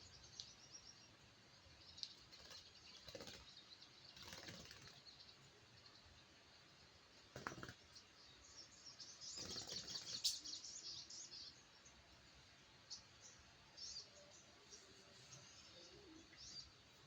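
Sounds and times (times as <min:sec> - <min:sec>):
bird chirping: 0:00.0 - 0:17.0
wings fluttering rustle: 0:02.1 - 0:05.2, 0:07.2 - 0:07.9, 0:09.4 - 0:10.4.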